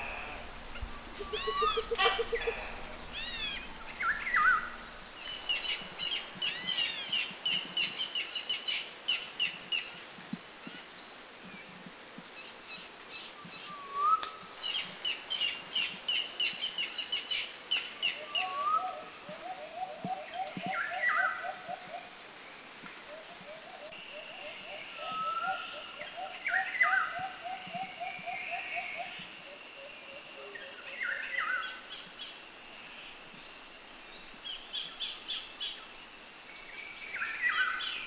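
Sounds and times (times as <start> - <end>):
short rising bird call: 0.0 - 5.8
birds whistling: 0.0 - 6.8
quick repeated bird chirps: 1.2 - 2.7.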